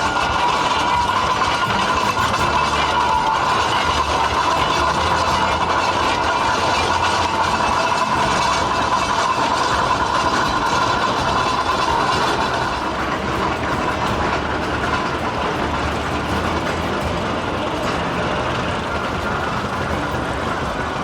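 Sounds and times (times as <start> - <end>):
steam engine running: 0.0 - 21.0.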